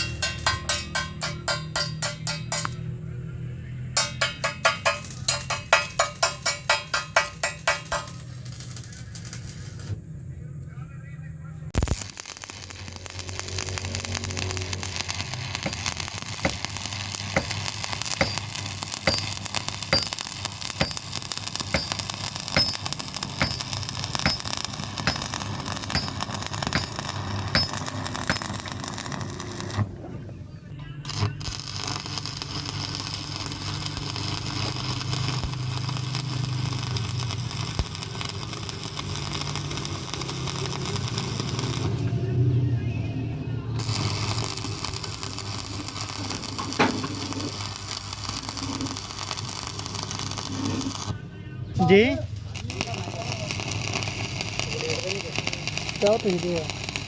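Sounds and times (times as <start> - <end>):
rapid hammer blows on metal: 0.0 - 2.8, 4.0 - 8.3, 17.3 - 28.7
metal-on-metal strikes ringing: 0.0 - 3.0, 4.0 - 8.3, 17.4 - 28.6.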